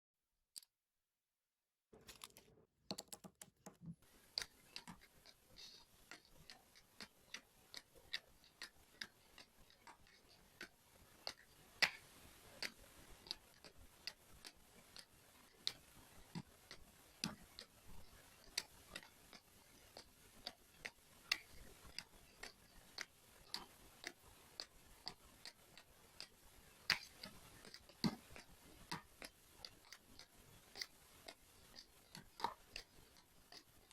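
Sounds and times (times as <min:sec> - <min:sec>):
pen tapping resin drills: 0:02.0 - 0:04.0.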